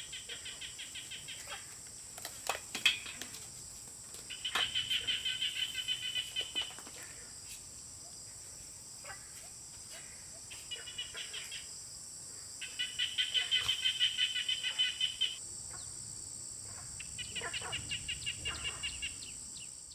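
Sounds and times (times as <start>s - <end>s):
rapid pulsing bird calls: 0.0s - 1.7s, 4.3s - 7.2s, 10.0s - 11.7s, 12.6s - 15.9s, 16.7s - 19.7s.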